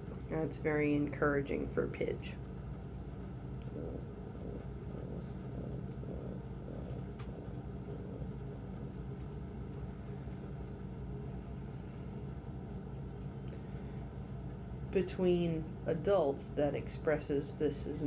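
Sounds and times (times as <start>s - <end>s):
steady low hum: 0.0s - 18.0s
person imitating pigeon grunts: 3.7s - 8.9s.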